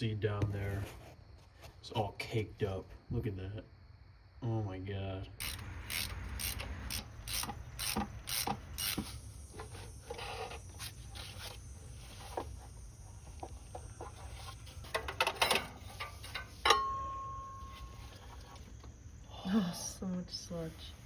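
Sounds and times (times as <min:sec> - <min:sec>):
hand ratchet clicking: 0:05.4 - 0:09.1.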